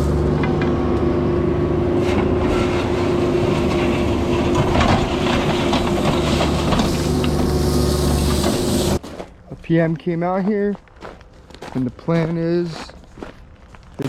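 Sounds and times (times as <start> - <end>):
diesel engine running: 0.0 - 9.0
clattering knocks: 3.5 - 9.3.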